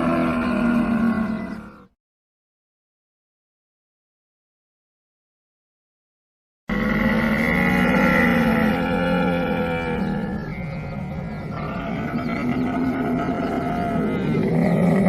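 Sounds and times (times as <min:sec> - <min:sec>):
camel calling: 0:00.0 - 0:01.8, 0:06.7 - 0:15.0.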